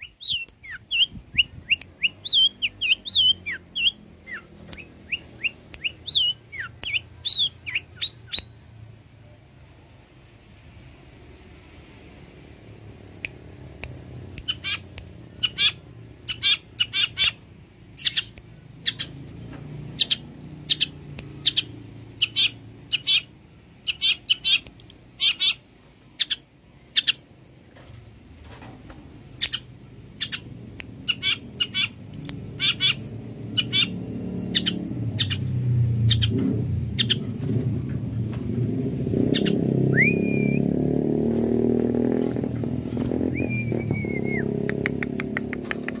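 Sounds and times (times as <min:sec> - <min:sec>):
low rumbling noise: 0:27.8 - 0:46.0
bird giving sharp calls: 0:31.1 - 0:32.0, 0:32.6 - 0:33.0, 0:33.6 - 0:35.4
rising whistle: 0:39.9 - 0:40.7, 0:43.3 - 0:44.5.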